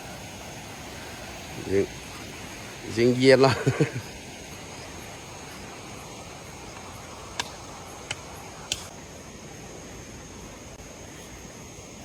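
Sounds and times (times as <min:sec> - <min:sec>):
high insect drone: 0:00.0 - 0:12.0
outdoor background hiss: 0:00.0 - 0:12.0
sharp clicks: 0:06.7 - 0:08.9.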